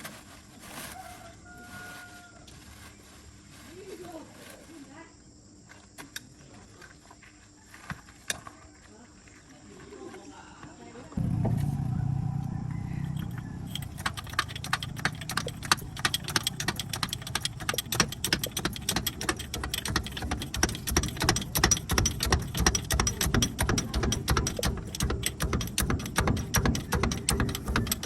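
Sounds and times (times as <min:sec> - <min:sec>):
low hum: 0:11.2 - 0:28.0
metallic clicking and rattling: 0:13.0 - 0:28.0.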